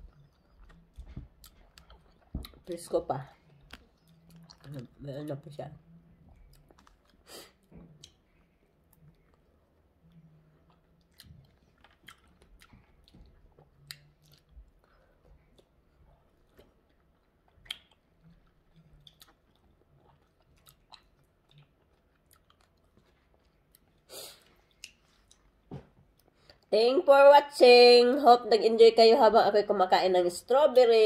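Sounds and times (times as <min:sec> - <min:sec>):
person chewing: 0:00.0 - 0:02.7, 0:03.4 - 0:05.0, 0:06.4 - 0:26.7.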